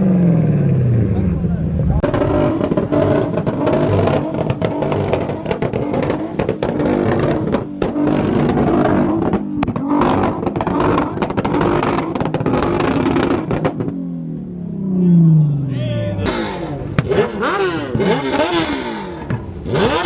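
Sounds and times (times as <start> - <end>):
car engine revving hard: 2.0 - 13.9, 16.3 - 20.0.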